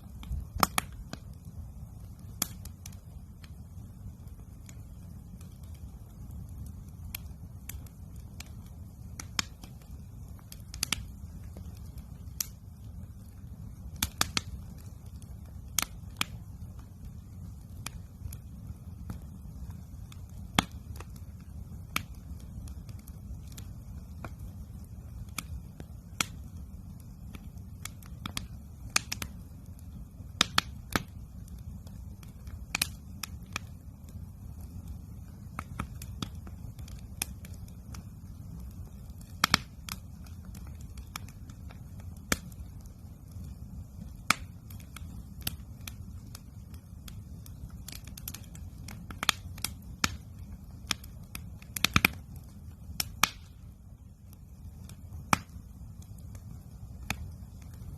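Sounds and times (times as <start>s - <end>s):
campfire crackling: 0.0s - 57.9s.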